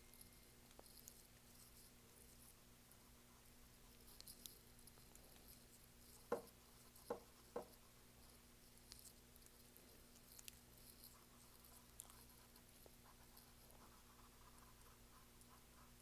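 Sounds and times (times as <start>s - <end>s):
low steady hum: 0.0s - 16.0s
soft knocks: 6.3s - 6.5s.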